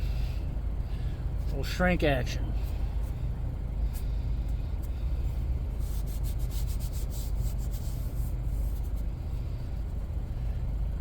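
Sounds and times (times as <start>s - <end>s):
steady low hum: 0.0s - 11.0s
rubbing on vinyl seat: 5.7s - 9.1s.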